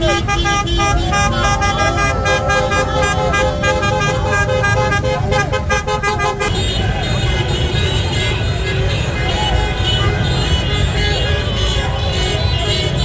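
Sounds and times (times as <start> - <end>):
wavering voices: 0.0 - 5.6
car horns honking: 0.0 - 13.0.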